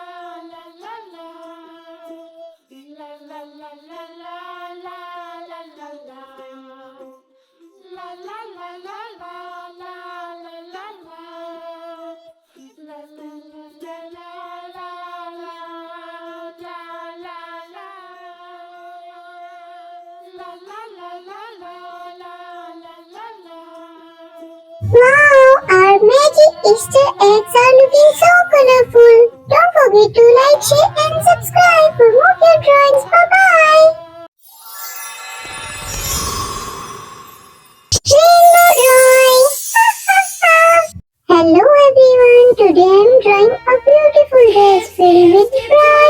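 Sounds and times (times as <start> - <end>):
child singing: 0.0 - 7.1, 24.8 - 34.2, 38.0 - 46.0.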